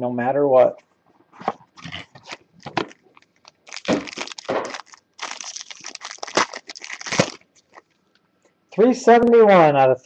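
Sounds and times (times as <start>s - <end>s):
packaging crinkling: 1.8s - 8.1s.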